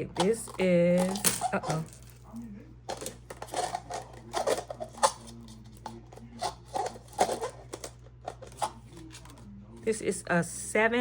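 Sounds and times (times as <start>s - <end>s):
jewelry clicking and clinking: 0.0s - 2.2s.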